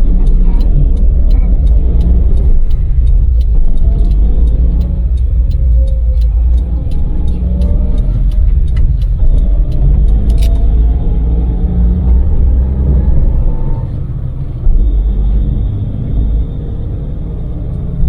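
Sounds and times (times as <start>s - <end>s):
light ticks: 0.0s - 11.4s
van engine and tyres rumbling: 0.0s - 18.0s.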